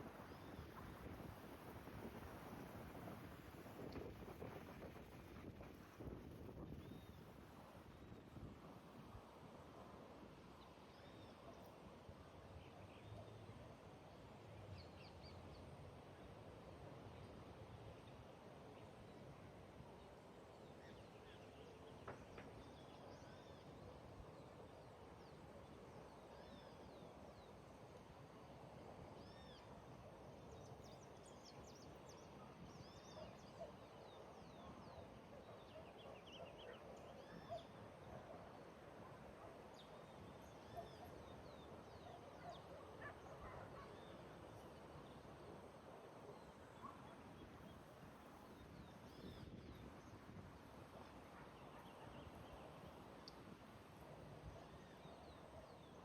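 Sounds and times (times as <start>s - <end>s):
outdoor ambient hiss: 0.0s - 56.0s.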